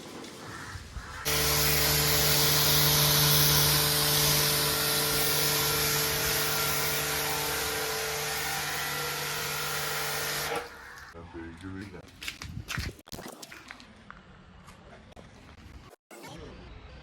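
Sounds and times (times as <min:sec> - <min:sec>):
electric power tool motor hum: 0:01.2 - 0:10.7.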